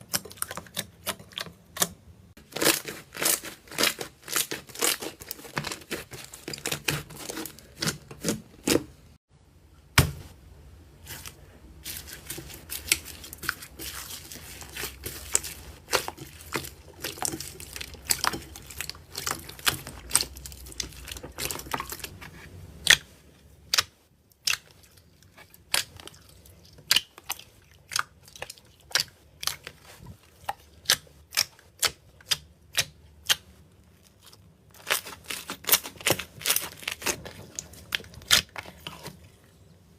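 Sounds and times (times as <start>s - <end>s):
slime crackling and popping: 34.7s - 39.1s.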